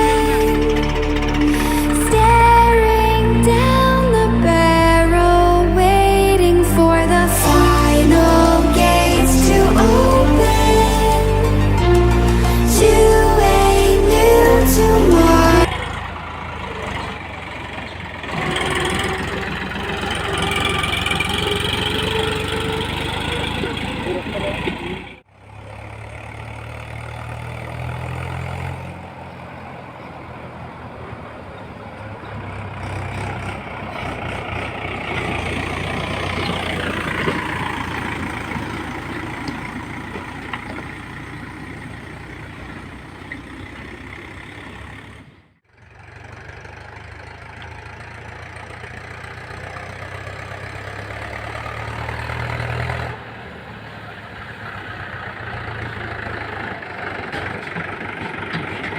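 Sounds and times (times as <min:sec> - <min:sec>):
rising and falling whine: 0:00.0 - 0:15.7
diesel engine running: 0:00.0 - 0:58.9.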